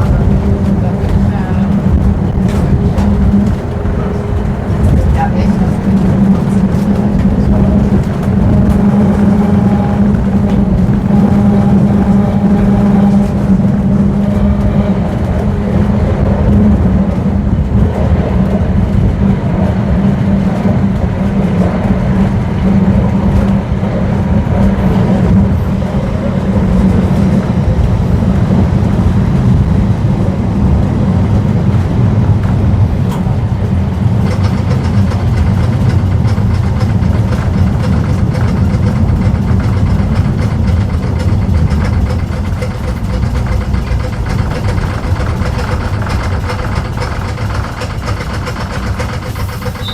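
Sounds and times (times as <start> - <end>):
tram rumbling along track: 0.0 - 49.9.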